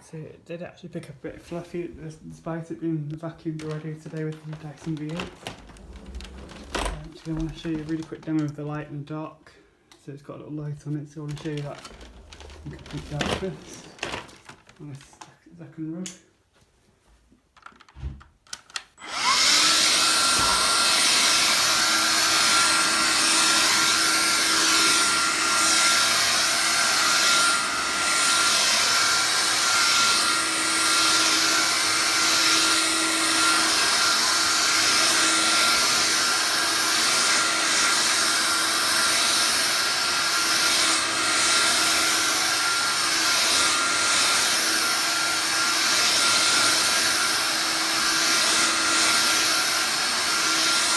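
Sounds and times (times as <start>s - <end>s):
vacuum cleaner running: 3.4s - 8.4s, 11.3s - 14.2s, 19.0s - 50.9s.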